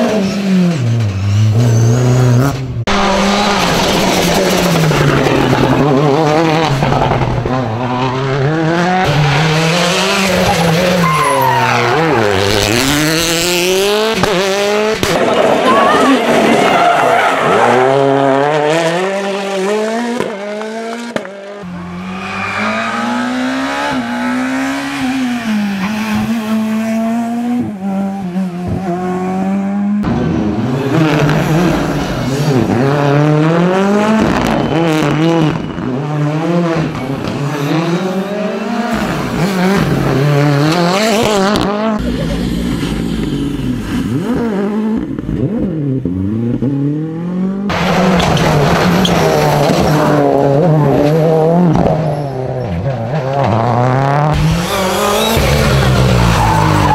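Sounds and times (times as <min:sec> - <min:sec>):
rally car engines revving: 0:00.0 - 0:56.9
tyre squeal: 0:10.5 - 0:12.4, 0:51.9 - 0:52.8.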